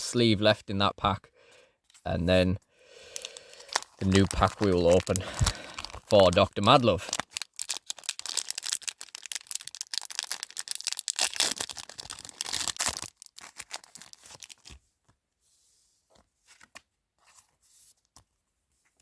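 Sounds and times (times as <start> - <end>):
foil wrapper tearing and crinkling: 3.0 - 14.8.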